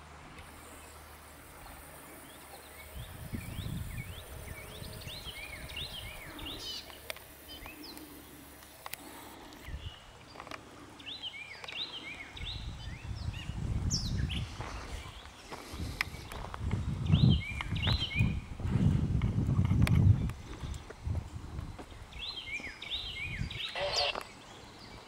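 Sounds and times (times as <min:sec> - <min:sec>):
birds chirping: 0:00.5 - 0:18.5, 0:20.1 - 0:25.0
low microphone rumble: 0:15.8 - 0:22.4.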